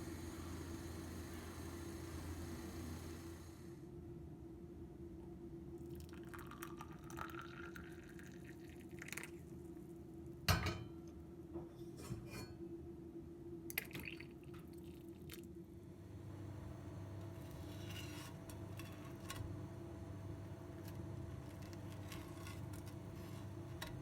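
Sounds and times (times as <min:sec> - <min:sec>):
liquid poured into glass: 0:06.0 - 0:09.3.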